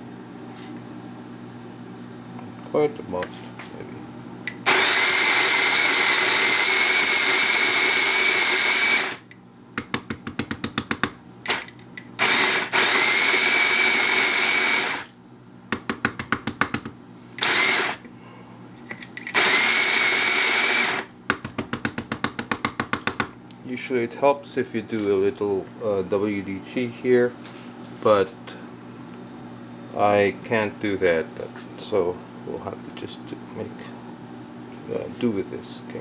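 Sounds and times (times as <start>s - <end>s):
coffee grinder motor whining: 4.5s - 9.3s, 12.2s - 15.2s, 17.4s - 18.1s, 19.2s - 21.1s.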